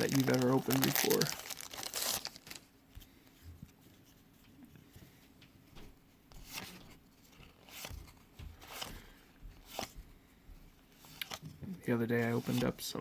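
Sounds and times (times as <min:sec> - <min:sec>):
foil wrapper rustling: 0:00.0 - 0:02.7
trading cards rustling: 0:00.0 - 0:03.2, 0:06.4 - 0:10.0, 0:12.1 - 0:12.8.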